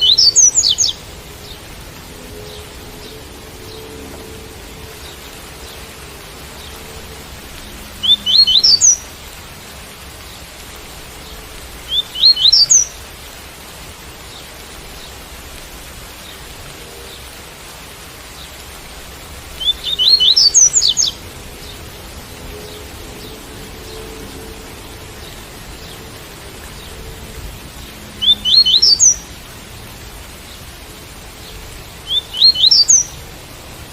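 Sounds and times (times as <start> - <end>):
bird singing high rising notes: 0.0 - 9.1, 11.9 - 13.0, 19.6 - 21.8, 28.1 - 29.3, 32.1 - 33.2
steady rain: 0.0 - 33.9.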